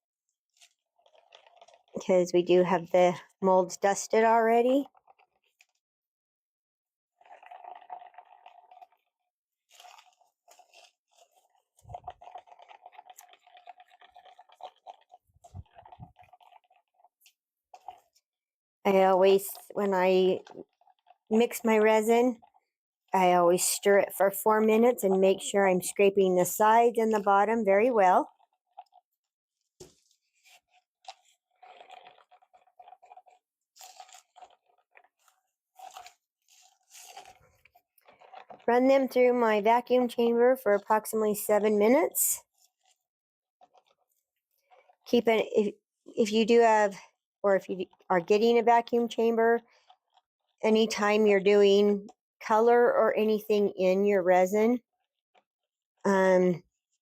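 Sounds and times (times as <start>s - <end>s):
stir stick scraping plastic cup: 0.5s - 5.8s, 7.2s - 18.3s, 18.9s - 22.6s, 23.2s - 45.6s, 47.6s - 52.6s.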